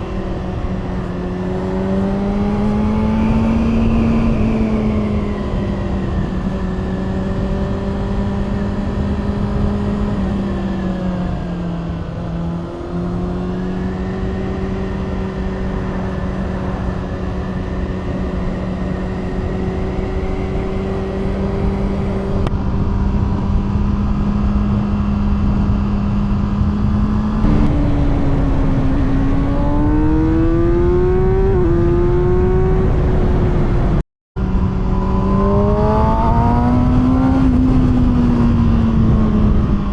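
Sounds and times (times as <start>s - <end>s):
motorcycle engine revving: 0.0s - 39.9s
gear change: 25.8s - 32.6s.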